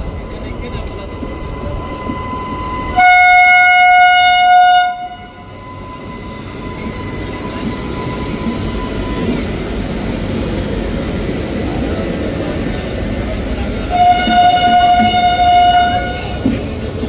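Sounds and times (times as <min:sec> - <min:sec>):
train rumbling on rails: 0:00.0 - 0:17.0
locomotive horn blast: 0:02.9 - 0:05.5, 0:13.9 - 0:16.4.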